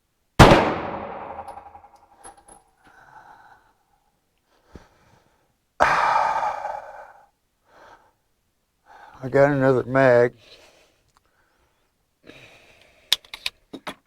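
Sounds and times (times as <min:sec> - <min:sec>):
soft breath: 0:02.2 - 0:09.2, 0:10.4 - 0:13.2
person sighing: 0:05.8 - 0:07.3.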